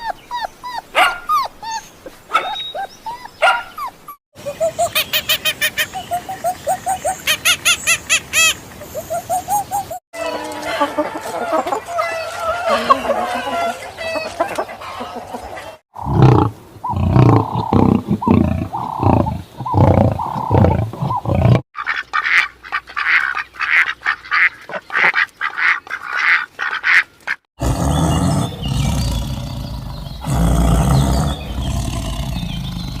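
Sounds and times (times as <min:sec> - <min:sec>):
ducks quacking: 0:21.1 - 0:27.4.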